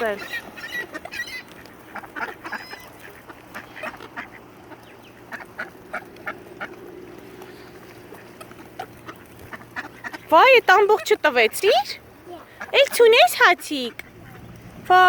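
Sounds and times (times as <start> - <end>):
ducks quacking and honking: 0.0 - 15.0.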